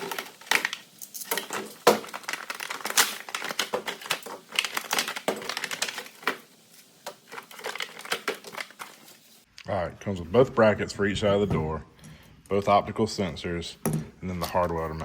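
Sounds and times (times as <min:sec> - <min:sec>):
plastic and cardboard packaging crinkling: 0:00.0 - 0:09.5.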